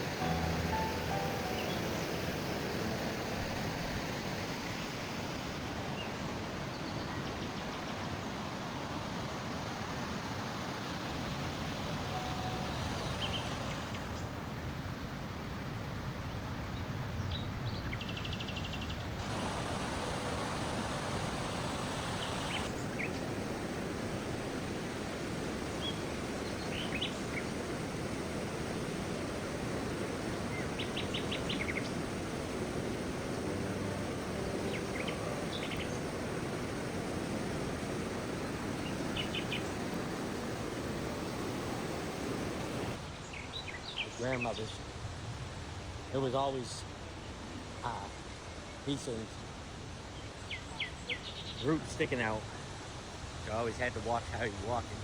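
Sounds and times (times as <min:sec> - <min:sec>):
small birds chirping: 0:00.0 - 0:03.6, 0:12.1 - 0:14.4, 0:16.7 - 0:23.7, 0:24.7 - 0:44.8, 0:50.2 - 0:52.1
steady rushing noise: 0:19.2 - 0:43.2.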